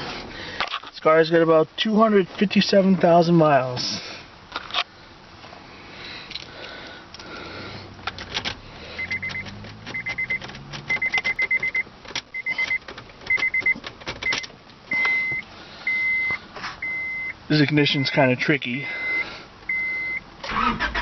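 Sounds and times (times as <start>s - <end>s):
keys jingling in ignition: 8.0s - 14.5s
rapid electronic warning beeping: 9.0s - 17.4s, 18.9s - 20.2s.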